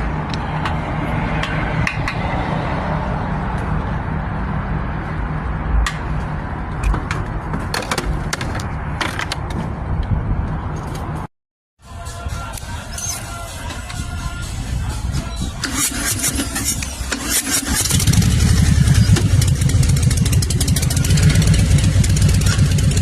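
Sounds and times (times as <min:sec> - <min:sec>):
sharp clicks and knocks: 0:05.8 - 0:10.2
engine idling: 0:13.5 - 0:23.0.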